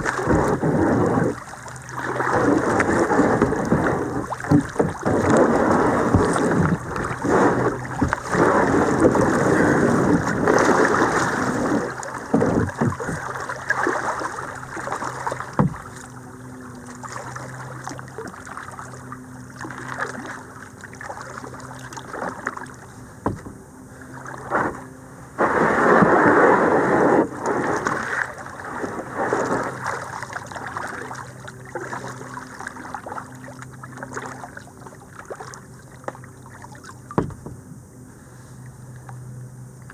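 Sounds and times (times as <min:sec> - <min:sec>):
paddle knocking against hull: 0:00.0 - 0:16.2, 0:21.2 - 0:23.6, 0:36.0 - 0:37.8
paddle splashing in water: 0:00.0 - 0:37.6.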